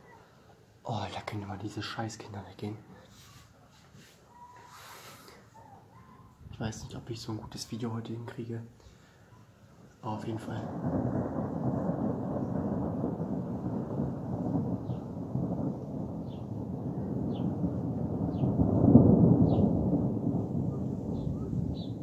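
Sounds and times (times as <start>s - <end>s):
thunder rumbling: 10.1s - 22.0s.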